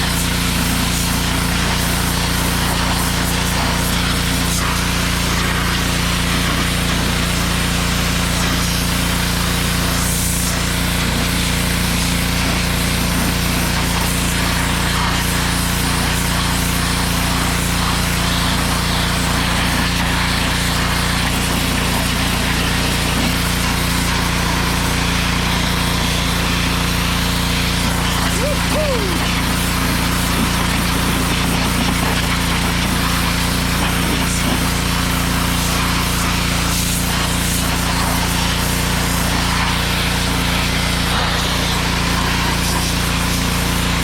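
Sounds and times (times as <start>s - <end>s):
pressure washer motor humming: 0.0s - 44.0s
water jet spraying: 0.0s - 44.0s.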